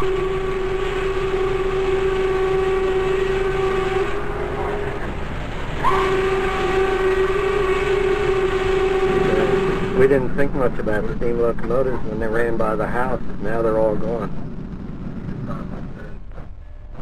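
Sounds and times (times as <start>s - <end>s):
steam whistle blasts: 0.0s - 10.3s
train rumbling: 0.0s - 17.0s.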